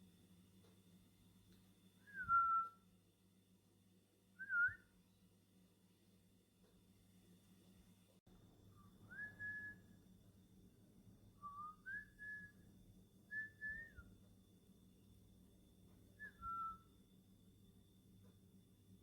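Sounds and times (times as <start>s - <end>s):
bird whistling phrases: 13.4s - 14.0s.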